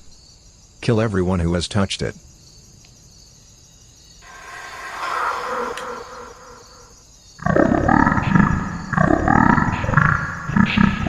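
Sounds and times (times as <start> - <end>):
rough creature roar: 4.2 - 7.0
whoosh: 4.2 - 7.0.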